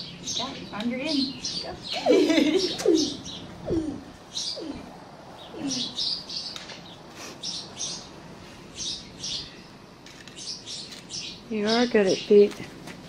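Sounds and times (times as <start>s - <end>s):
small birds chirping: 0.0s - 12.7s
low falling sounds: 2.0s - 6.2s.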